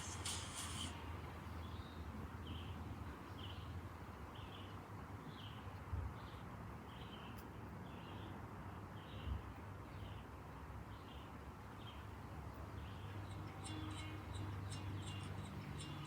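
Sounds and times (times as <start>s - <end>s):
bird chirping: 10.9s - 16.0s.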